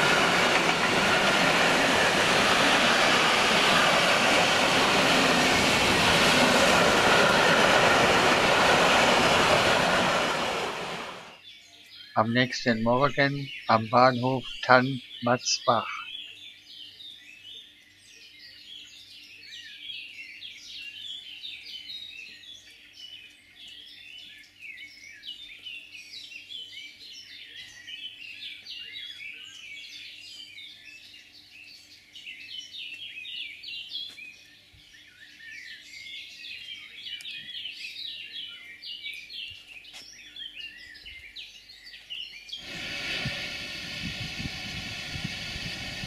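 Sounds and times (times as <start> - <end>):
small birds chirping: 11.3 - 46.0.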